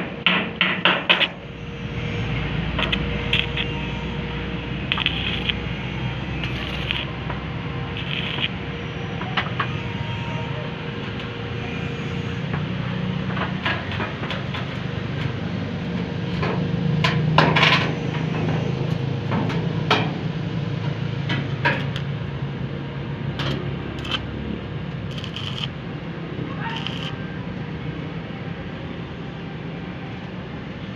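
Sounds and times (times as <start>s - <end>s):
steady low hum: 1.1s - 12.8s.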